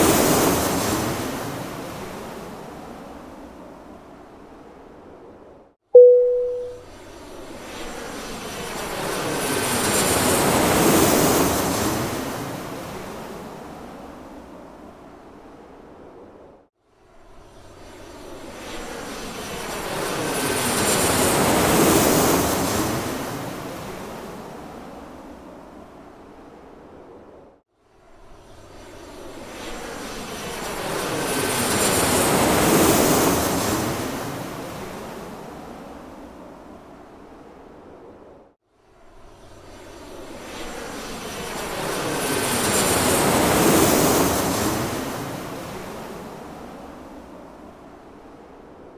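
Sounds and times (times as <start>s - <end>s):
airplane engine passing by: 39.4s - 47.6s.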